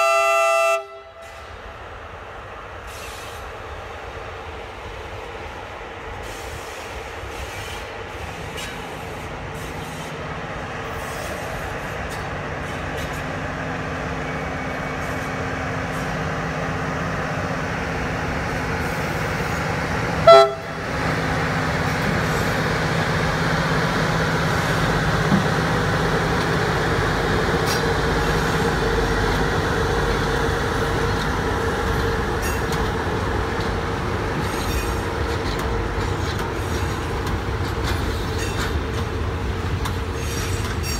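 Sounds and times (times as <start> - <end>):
train horn blast: 0.0 - 1.5, 20.2 - 20.8
freight train rumbling: 0.0 - 40.9.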